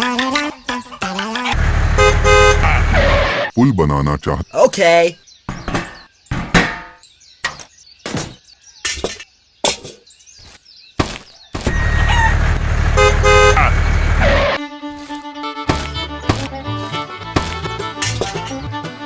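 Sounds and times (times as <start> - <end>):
vehicle engine running loudly: 1.6 - 3.3, 11.7 - 14.6
short horn toot: 1.9 - 3.4, 12.9 - 14.6
sharp knocks: 5.5 - 8.4.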